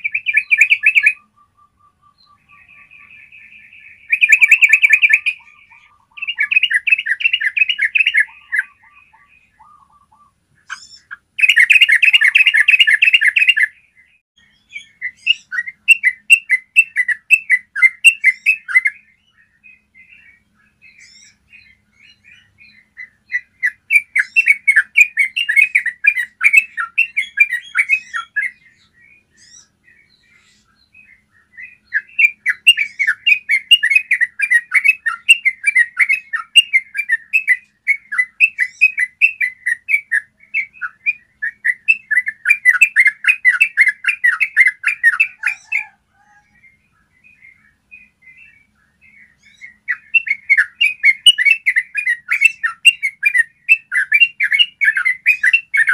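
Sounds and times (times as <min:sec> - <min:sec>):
bulbul singing rolling song: 0:00.0 - 0:55.9.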